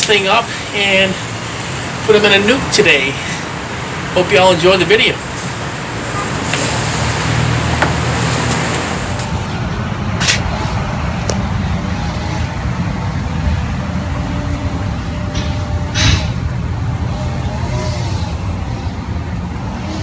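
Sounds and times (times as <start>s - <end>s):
road traffic rumble: 0.0s - 20.0s
sharp click: 10.2s - 10.5s.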